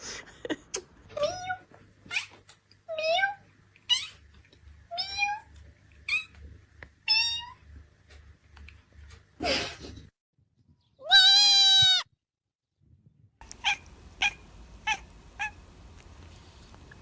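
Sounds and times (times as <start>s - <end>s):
cat meowing: 7.1s - 7.7s, 11.0s - 12.1s, 13.5s - 16.9s.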